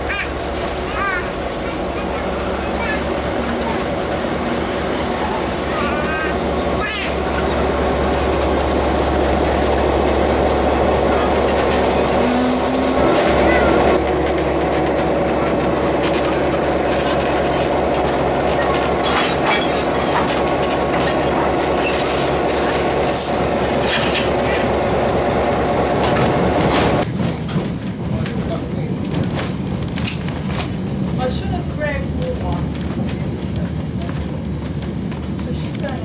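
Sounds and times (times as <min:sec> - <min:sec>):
train carriages rumbling: 0:00.0 - 0:36.0
wheels clicking on rails: 0:00.0 - 0:36.0
high wheel squeal: 0:11.5 - 0:13.9, 0:21.1 - 0:22.8.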